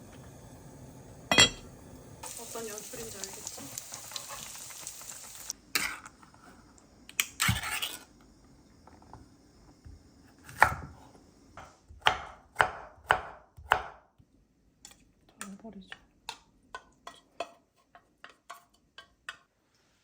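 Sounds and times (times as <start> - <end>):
food sizzling in a pan: 0.0 - 11.8
knife chopping on cutting board: 10.4 - 11.0, 11.6 - 14.0.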